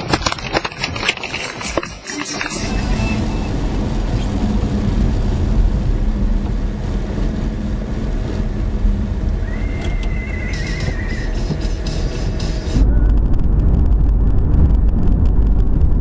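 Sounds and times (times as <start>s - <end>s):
car driving rumble: 0.0s - 16.0s
wavering high-pitched tone: 9.4s - 11.4s.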